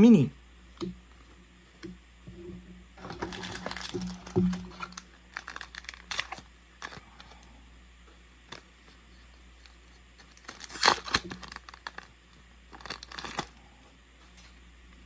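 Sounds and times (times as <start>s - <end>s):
wrapper crinkling and tearing: 3.0s - 7.4s, 9.6s - 13.6s.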